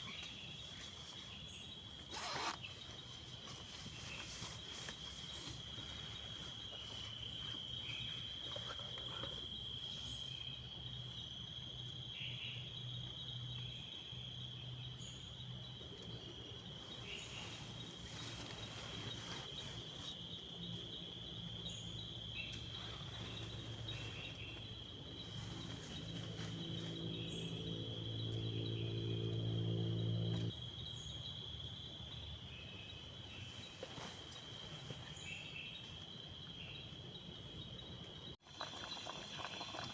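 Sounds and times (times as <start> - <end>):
insect trilling: 2.1 - 2.8, 38.4 - 39.9.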